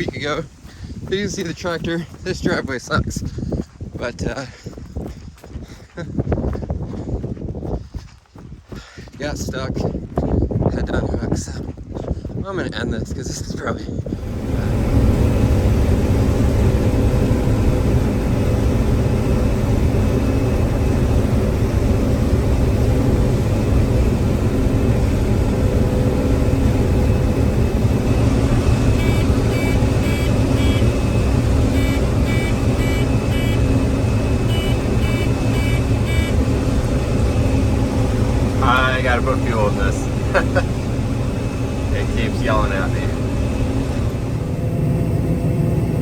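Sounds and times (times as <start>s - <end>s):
combine engine running: 0.0s - 46.0s
warning alarm beeps: 28.9s - 36.5s.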